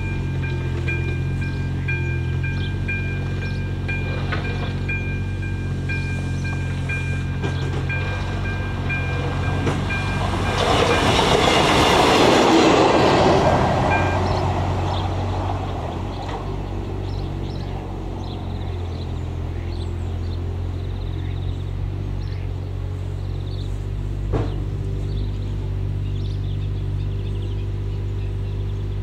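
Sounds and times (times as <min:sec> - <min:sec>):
crossing warning bell ringing: 0:00.0 - 0:22.1
diesel railcar passing: 0:00.0 - 0:29.0.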